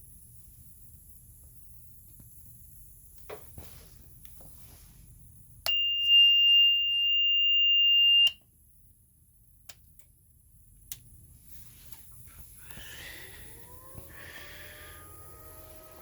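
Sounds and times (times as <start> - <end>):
click: 10.9 - 11.1.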